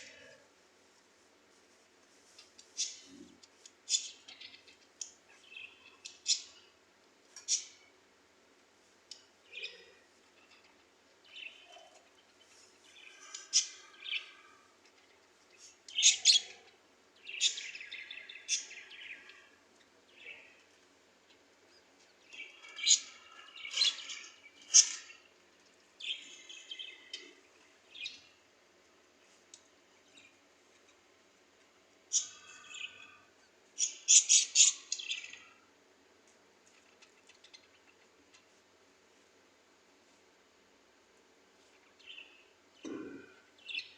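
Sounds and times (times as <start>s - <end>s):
parrot chirping and squawking: 15.9s - 16.6s, 32.1s - 33.1s, 33.8s - 35.4s.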